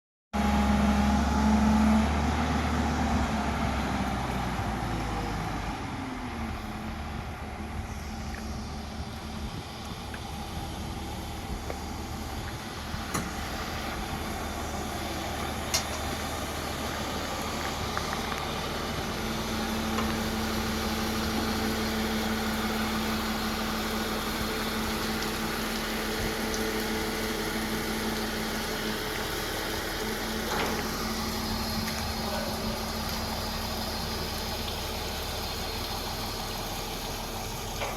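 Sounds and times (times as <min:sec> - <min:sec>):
heavy diesel engine running: 0:00.4 - 0:37.9.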